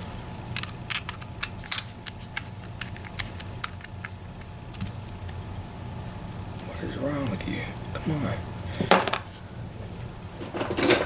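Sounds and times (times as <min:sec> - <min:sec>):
metal tools clicking on lock cylinder: 0:00.6 - 0:04.2.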